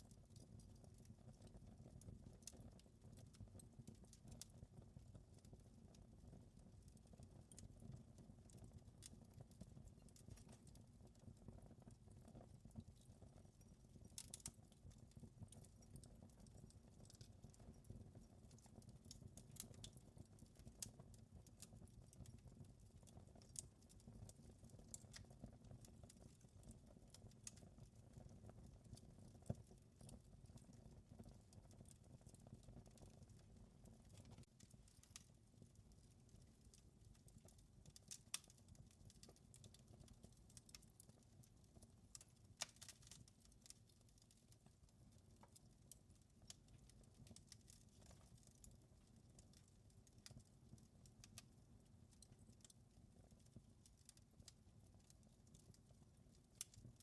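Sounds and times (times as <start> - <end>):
wood fire crackling: 0.1 - 57.0.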